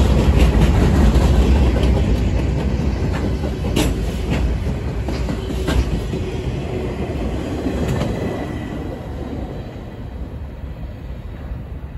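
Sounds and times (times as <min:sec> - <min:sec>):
train cars rumbling on rails: 0:00.0 - 0:11.9.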